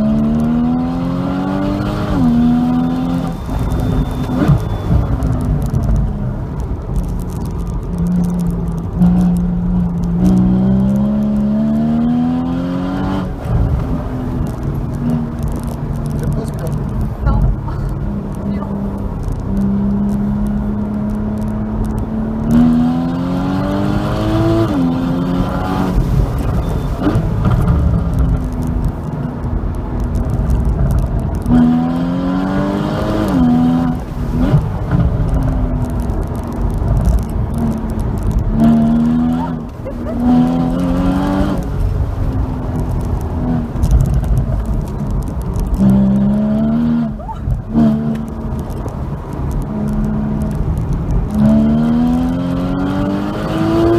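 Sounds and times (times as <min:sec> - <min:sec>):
car engine revving hard: 0:00.0 - 0:04.7, 0:10.2 - 0:13.9, 0:19.6 - 0:27.7, 0:31.4 - 0:35.4, 0:37.4 - 0:41.9, 0:45.8 - 0:48.7, 0:49.5 - 0:53.9
road noise: 0:00.0 - 0:53.9.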